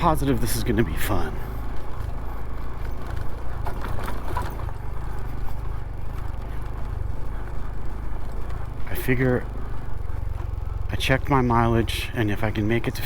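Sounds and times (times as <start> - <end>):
motorcycle engine running: 0.0 - 13.0
knocks and rattles: 1.6 - 10.8.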